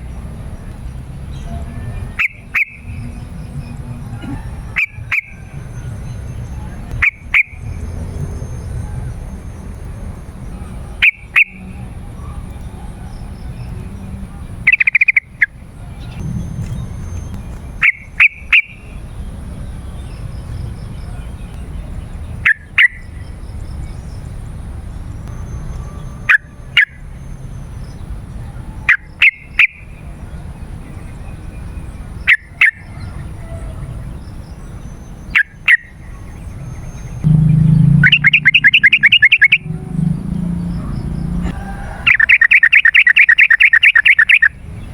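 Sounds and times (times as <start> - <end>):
bird calling: 1.9 - 3.2, 4.0 - 8.8, 14.7 - 19.0, 35.3 - 44.7
low rumble: 15.9 - 17.8, 37.1 - 41.5
bird rattling run of notes: 37.3 - 39.7.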